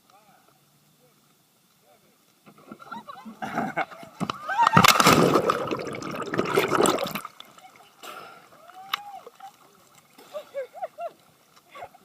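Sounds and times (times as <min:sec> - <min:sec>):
loud splash: 0:04.8 - 0:07.3
water churning and sloshing: 0:04.8 - 0:08.0.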